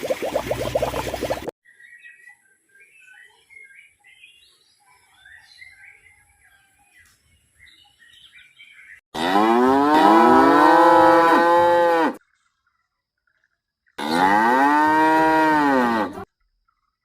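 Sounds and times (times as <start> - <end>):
faint bird chirping: 1.7 - 9.0
cow mooing: 9.2 - 12.2, 14.0 - 16.3.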